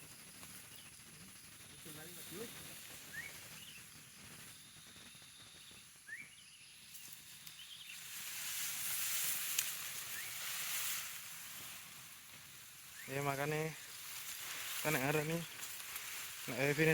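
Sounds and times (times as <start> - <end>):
bird chirps: 0.0 - 8.3, 10.0 - 10.8, 12.7 - 14.0
dry rustling hiss: 0.0 - 16.9.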